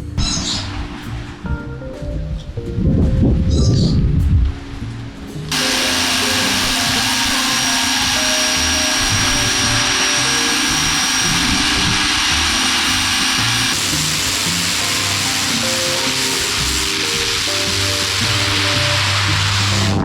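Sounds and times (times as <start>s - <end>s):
background music: 0.0s - 20.0s
pressure washer spraying: 5.5s - 20.0s.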